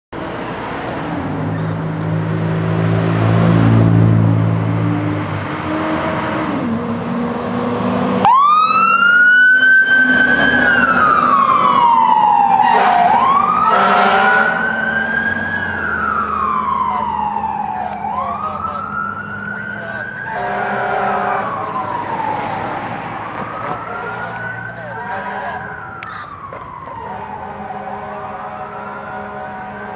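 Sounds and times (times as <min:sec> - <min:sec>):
fire engine running: 0:00.2 - 0:29.9
siren wailing: 0:08.1 - 0:29.9
short horn blasts: 0:12.6 - 0:14.6, 0:20.3 - 0:21.5, 0:27.0 - 0:29.9.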